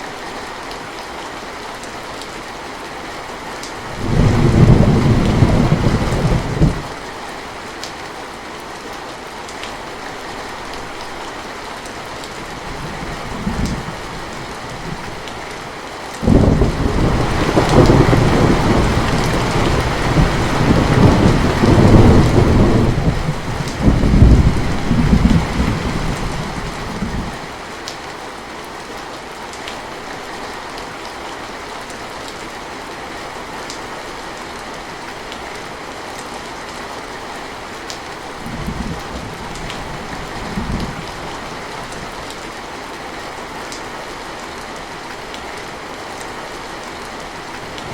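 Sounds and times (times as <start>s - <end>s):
steady rain: 0.0s - 47.9s
rolling thunder: 3.9s - 6.9s, 16.2s - 27.4s.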